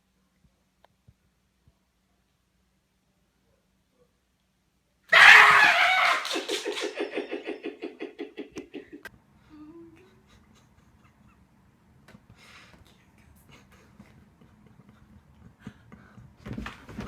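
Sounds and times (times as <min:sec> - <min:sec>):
person laughing: 0:05.2 - 0:09.1.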